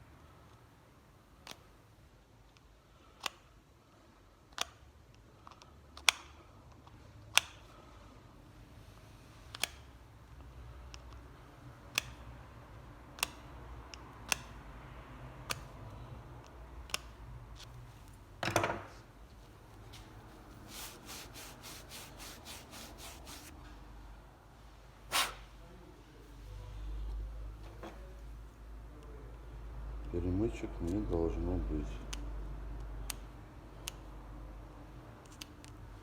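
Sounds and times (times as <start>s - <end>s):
tool scraping: 19.9s - 23.5s.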